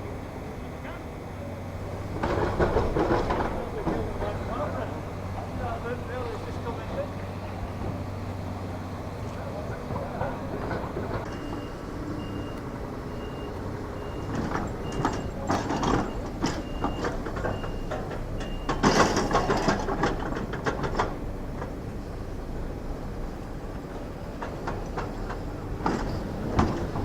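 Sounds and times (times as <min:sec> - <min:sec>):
low diesel engine: 0:00.0 - 0:27.0
reversing alarm beeping: 0:11.2 - 0:19.0.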